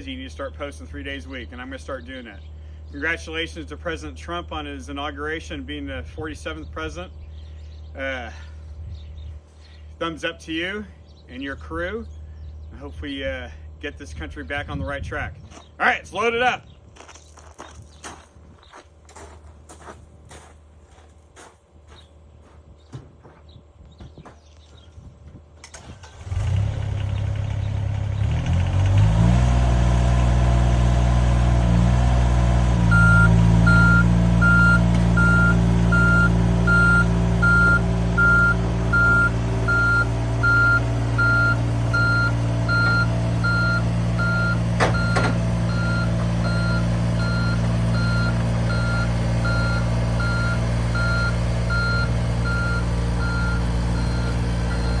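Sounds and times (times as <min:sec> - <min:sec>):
excavator diesel engine running: 0:25.6 - 0:55.0
travel alarm beeping: 0:32.9 - 0:55.0.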